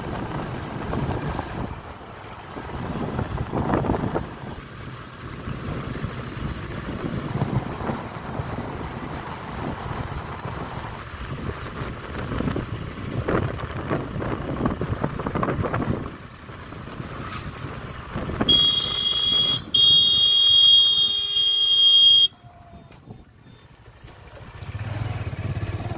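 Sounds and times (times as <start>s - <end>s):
rumbling wind and motion noise: 0.0s - 19.8s
loud horn blowing: 18.5s - 22.4s.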